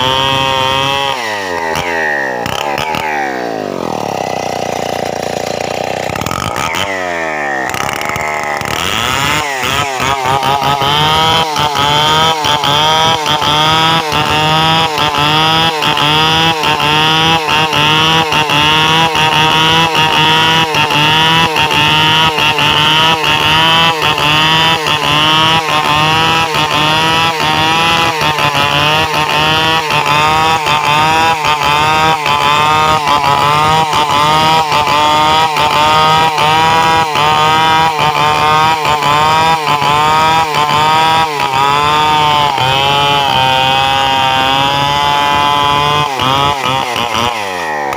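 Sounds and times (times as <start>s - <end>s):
chainsaw engine revving: 0.0s - 47.9s.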